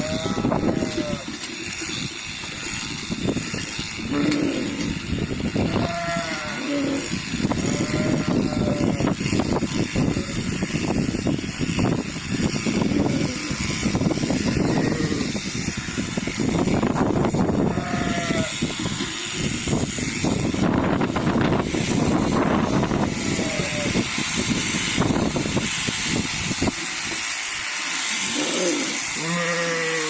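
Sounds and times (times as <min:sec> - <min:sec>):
sheep bleating: 0:00.0 - 0:01.5, 0:05.6 - 0:09.1, 0:14.5 - 0:16.1, 0:17.5 - 0:19.6, 0:23.0 - 0:24.0, 0:28.2 - 0:30.0
wind buffeting microphone: 0:00.0 - 0:27.3.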